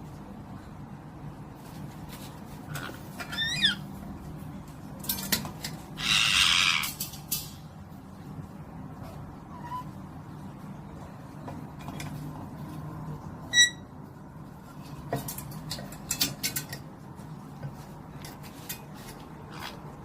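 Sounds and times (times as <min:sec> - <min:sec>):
parrot squeaking: 0:02.7 - 0:03.9, 0:06.0 - 0:07.0, 0:09.5 - 0:10.0, 0:13.5 - 0:13.9.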